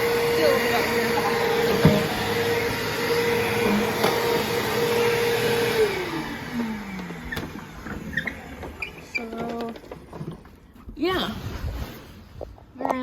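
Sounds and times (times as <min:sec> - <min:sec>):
upright vacuum motor whine: 0:00.0 - 0:09.8.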